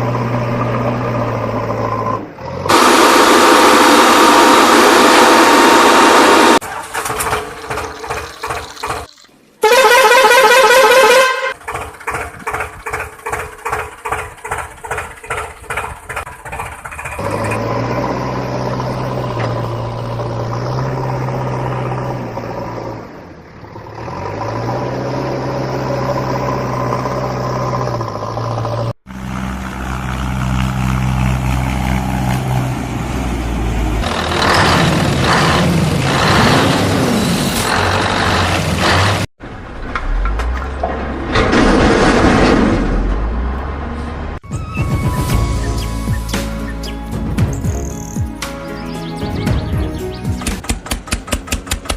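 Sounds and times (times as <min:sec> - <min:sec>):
heavy engines running: 0:00.0 - 0:09.0, 0:11.4 - 0:51.9
vehicle horn blast: 0:09.6 - 0:11.6
rhythmic engine chugging: 0:11.5 - 0:17.2.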